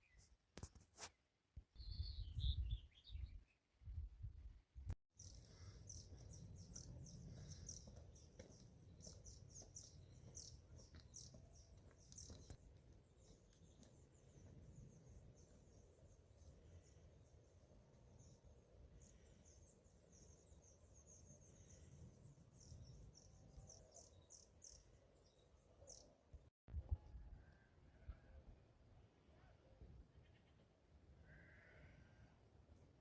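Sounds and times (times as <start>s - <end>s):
small birds chirping: 5.2s - 26.2s.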